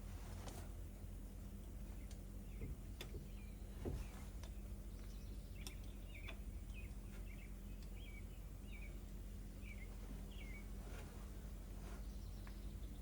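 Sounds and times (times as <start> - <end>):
low steady hum: 0.0 - 13.0
small bird chirping: 1.7 - 11.0, 11.8 - 13.0
sharp clicks: 5.6 - 7.0.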